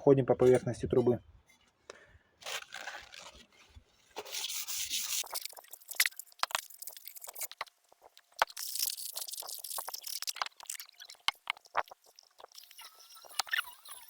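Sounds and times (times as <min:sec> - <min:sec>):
sandpaper rubbing metal pipe: 0:02.5 - 0:06.1.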